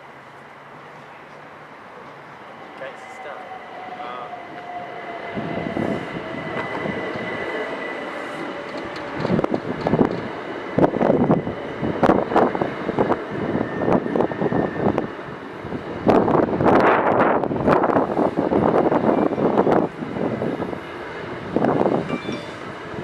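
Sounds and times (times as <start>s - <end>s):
train whine: 0.0s - 23.0s
train wheels clattering on rail joints: 8.3s - 11.0s.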